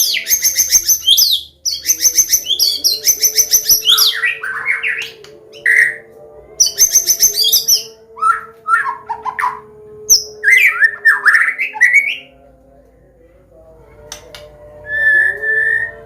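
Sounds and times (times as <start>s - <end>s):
songbird singing varied song: 0.0s - 12.3s.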